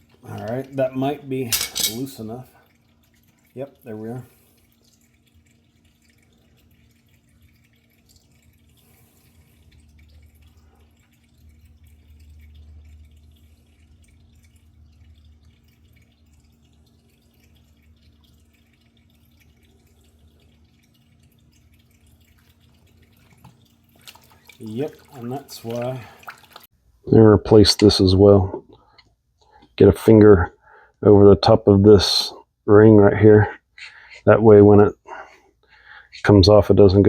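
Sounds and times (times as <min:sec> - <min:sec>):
oil dripping into a pan: 0:00.0 - 0:26.7.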